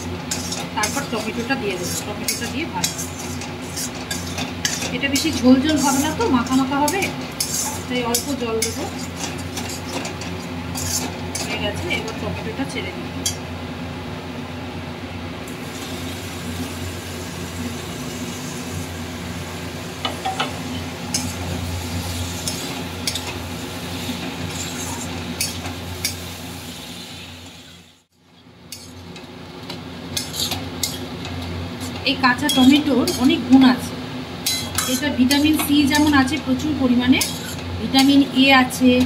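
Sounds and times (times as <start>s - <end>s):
vegetables sizzling in a pan: 0.0s - 13.5s, 15.4s - 28.1s, 28.7s - 39.0s
steady low hum: 0.0s - 39.0s
spatula scraping metal pan: 0.3s - 11.6s, 34.4s - 36.4s, 37.2s - 38.1s.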